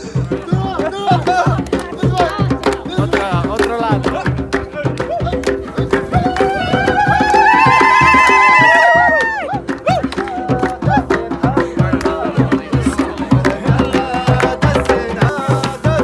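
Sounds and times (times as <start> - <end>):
hand drum beat: 0.0 - 16.0
traditional-style melody: 0.0 - 16.0.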